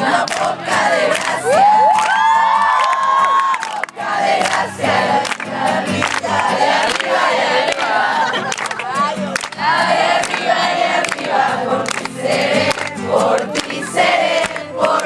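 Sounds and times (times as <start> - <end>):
group of people singing: 0.0 - 1.7, 3.7 - 15.0.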